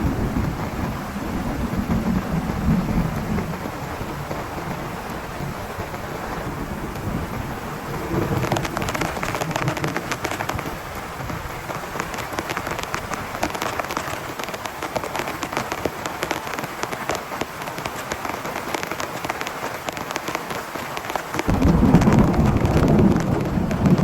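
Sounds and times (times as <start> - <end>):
low rumble of thunder: 0.0 - 11.4, 21.5 - 24.0
heavy rain hitting a tent: 0.0 - 24.0.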